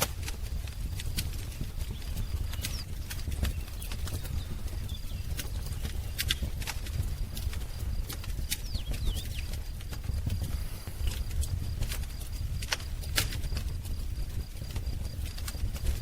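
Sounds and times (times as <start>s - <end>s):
wood fire crackling and popping: 0.0s - 16.0s
faint bird chirps: 1.4s - 11.4s.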